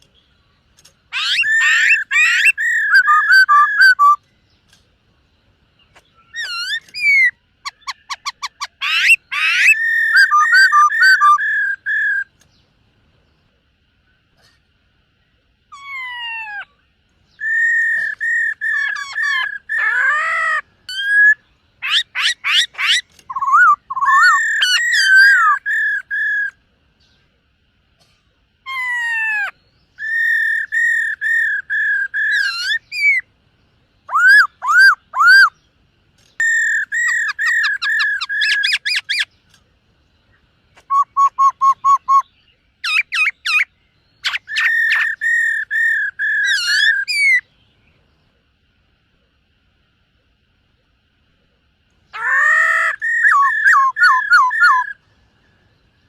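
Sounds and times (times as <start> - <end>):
bird singing whistled phrases: 1.1 - 4.3, 5.9 - 12.3, 17.3 - 26.6, 29.3 - 33.2, 34.0 - 35.6, 36.4 - 39.3, 40.8 - 47.5, 52.2 - 55.0.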